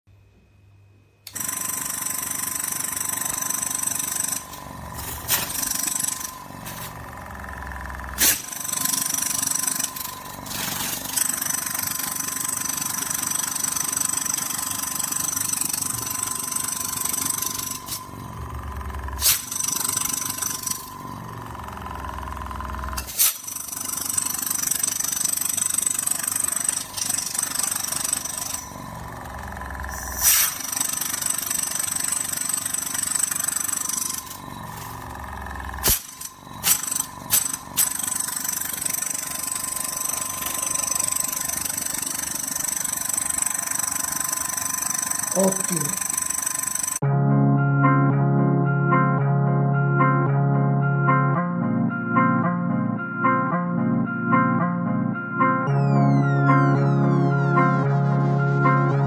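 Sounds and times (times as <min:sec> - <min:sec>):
airbrush compressor whining: 0:01.3 - 0:47.0.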